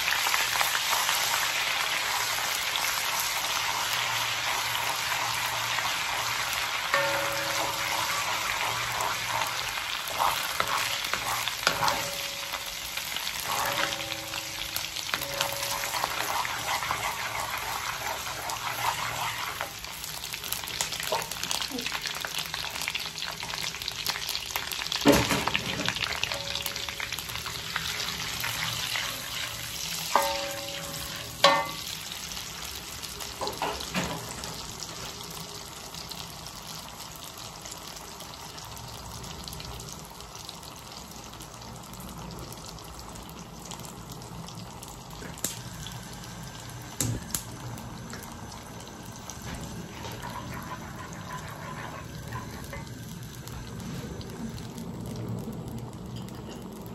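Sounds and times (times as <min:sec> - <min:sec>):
food sizzling in a wok: 0:00.0 - 0:56.9
spoon knocking against pan: 0:30.2 - 0:31.8.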